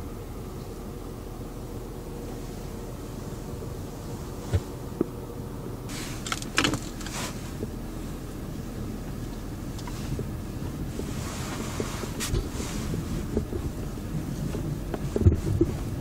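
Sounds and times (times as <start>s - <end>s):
car engine hum inside cabin: 0.0s - 16.0s
clicks and rustles: 5.9s - 7.8s.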